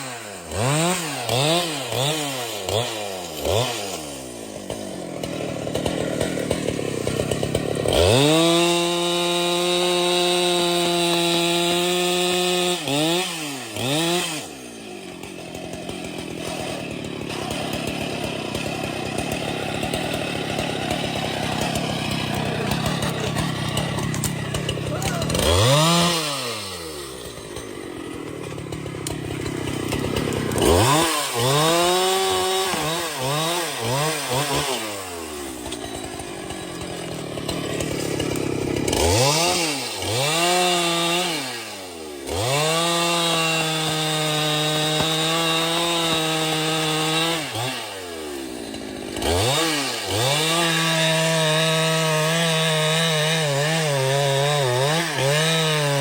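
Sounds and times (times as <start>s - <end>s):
chainsaw cutting into wood: 0.0s - 56.0s
chainsaw engine revving: 0.0s - 56.0s.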